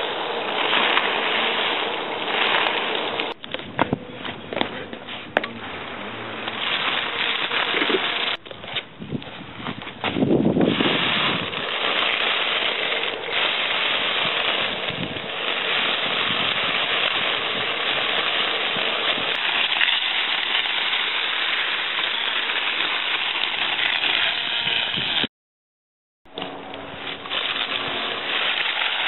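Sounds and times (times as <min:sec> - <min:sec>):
blade chopping grass: 0:10.0 - 0:25.3.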